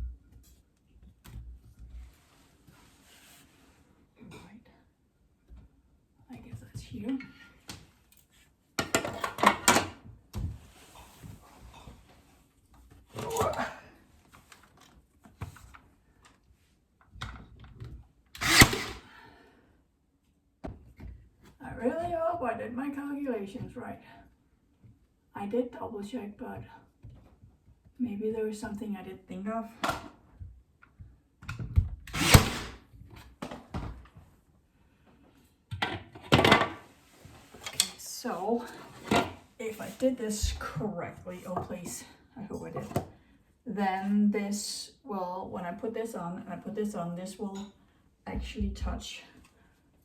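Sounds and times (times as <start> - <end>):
nail gun shot with hiss: 18.4 - 19.0, 32.1 - 32.8.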